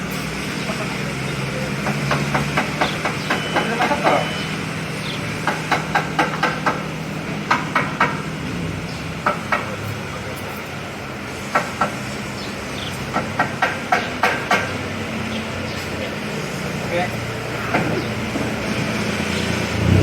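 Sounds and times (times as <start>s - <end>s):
engine hum: 0.0s - 20.0s
sharp metallic taps: 1.8s - 4.4s, 5.4s - 8.3s, 9.2s - 9.9s, 11.5s - 12.1s, 12.9s - 14.9s.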